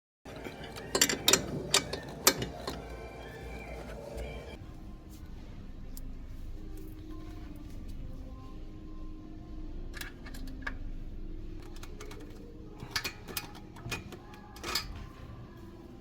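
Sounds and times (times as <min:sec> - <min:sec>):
low steady hum: 0:00.3 - 0:16.0
metallic clicks of tools: 0:11.6 - 0:15.0.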